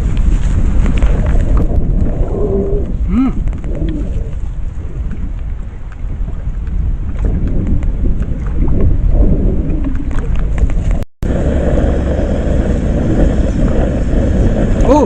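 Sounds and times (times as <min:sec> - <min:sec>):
wind rumbling on microphone: 0:00.0 - 0:15.0
steady rushing noise: 0:06.6 - 0:15.0.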